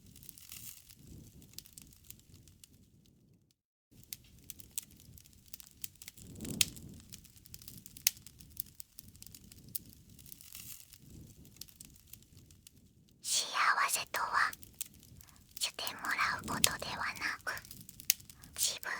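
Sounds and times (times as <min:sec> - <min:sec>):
campfire crackling: 0:04.0 - 0:12.3, 0:13.4 - 0:18.9.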